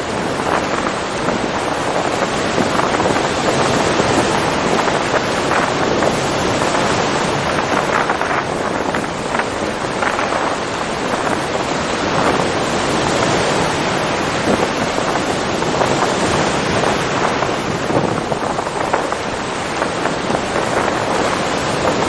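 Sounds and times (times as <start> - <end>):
ocean waves washing ashore: 0.0 - 22.0
wind: 0.0 - 22.0.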